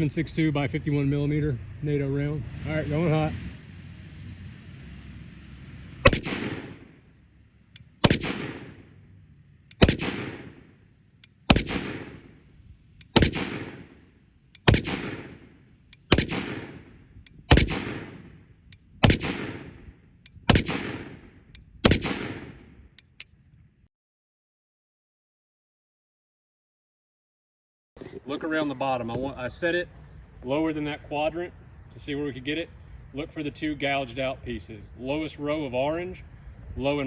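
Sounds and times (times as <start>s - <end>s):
rifle shots with echo: 6.0s - 7.0s, 7.8s - 9.0s, 9.7s - 23.2s.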